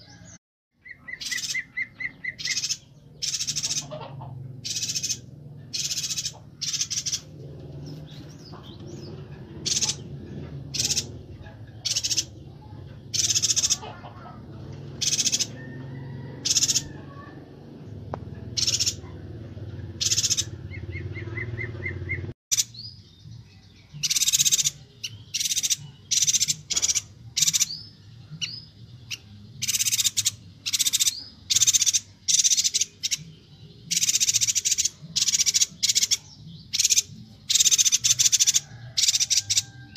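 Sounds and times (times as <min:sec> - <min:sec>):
birds calling high-pitched notes: 0:00.0 - 0:39.9.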